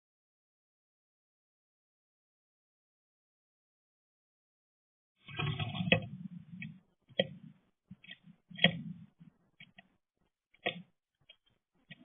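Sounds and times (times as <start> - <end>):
birds pecking on window feeder: 5.3 - 12.0.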